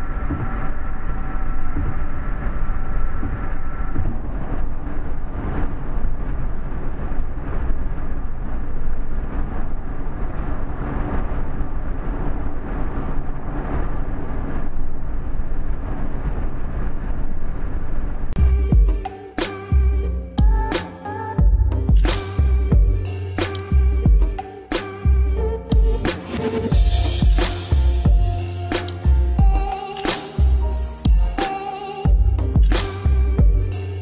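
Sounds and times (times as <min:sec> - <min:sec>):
tyre and wind noise: 0:00.0 - 0:19.0.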